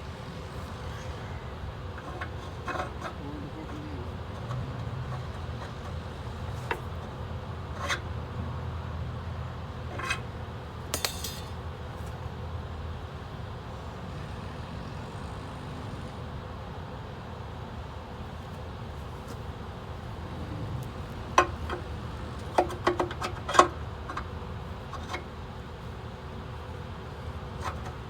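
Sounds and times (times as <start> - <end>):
low engine rumble: 0.0 - 28.0
sharp metal clinks: 11.0 - 11.6.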